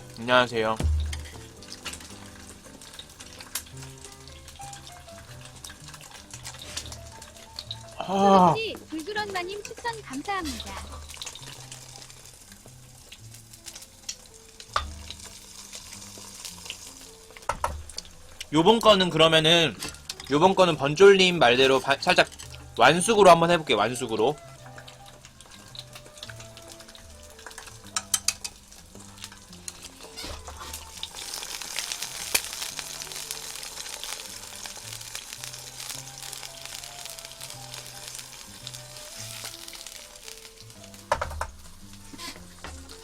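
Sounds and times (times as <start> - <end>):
eggs sizzling in hot oil: 0.0 - 43.0
sharp knock: 0.8 - 1.4.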